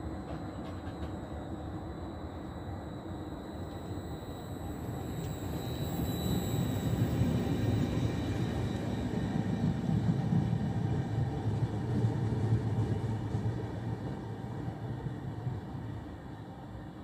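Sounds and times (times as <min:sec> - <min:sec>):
passenger train rumbling: 0:00.0 - 0:17.0.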